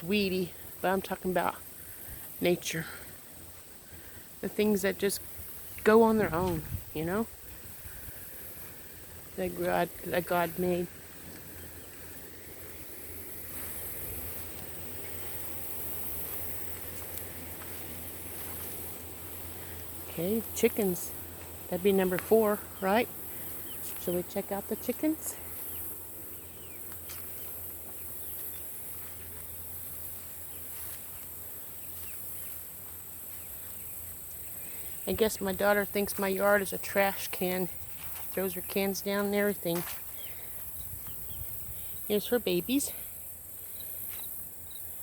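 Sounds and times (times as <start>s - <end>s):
high-pitched insect chorus: 0.0s - 45.0s
low rumble on microphone: 5.8s - 10.2s.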